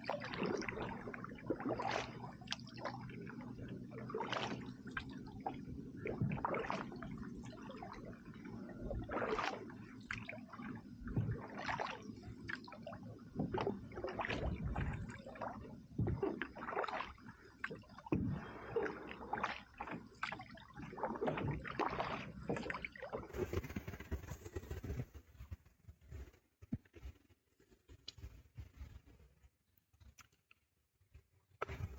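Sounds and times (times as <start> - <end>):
paddle splashes: 0.0 - 24.4
water gurgling around canoe: 0.0 - 25.1, 31.6 - 31.9.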